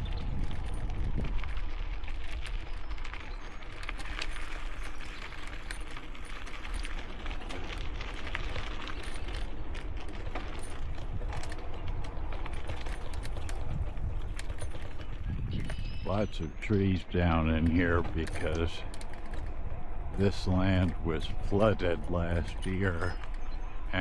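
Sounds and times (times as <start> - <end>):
wind on microphone: 0.0 - 5.4, 10.0 - 16.7
bicycle parts tinkling and clicking: 0.0 - 24.0.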